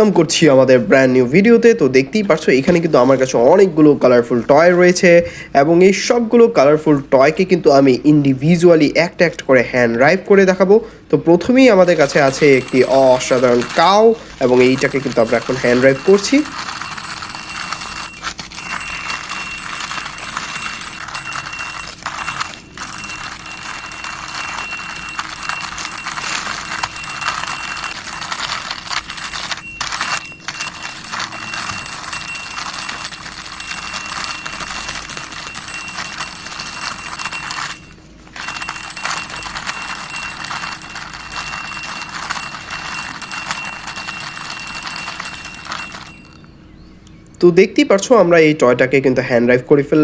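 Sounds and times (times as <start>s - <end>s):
toy car rattling whir: 11.7s - 46.5s.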